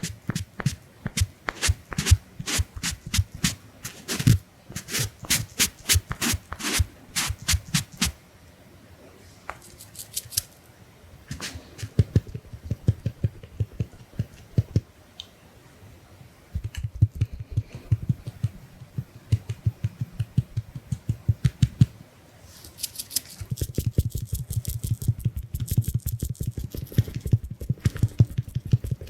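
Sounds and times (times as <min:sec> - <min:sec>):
crisp high brushing: 0:00.0 - 0:08.2, 0:11.3 - 0:12.0
makeup sponge dabbing: 0:00.0 - 0:08.2, 0:11.3 - 0:14.8.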